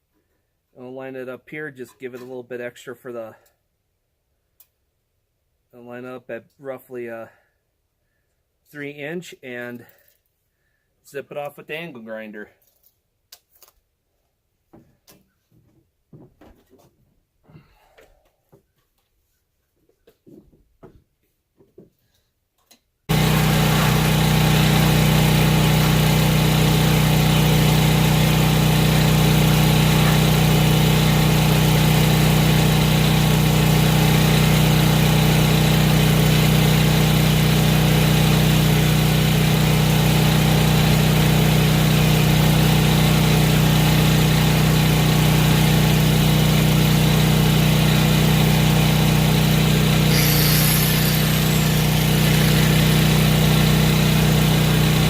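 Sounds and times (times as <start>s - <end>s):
angle grinder running: 23.1s - 55.0s.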